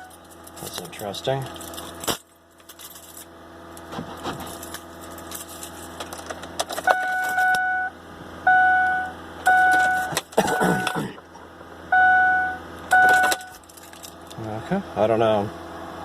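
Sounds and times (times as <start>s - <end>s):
keys jangling and clicking: 0.0s - 3.3s, 4.4s - 7.6s, 13.0s - 14.4s
electronic warning tone: 6.9s - 11.1s, 11.9s - 13.6s.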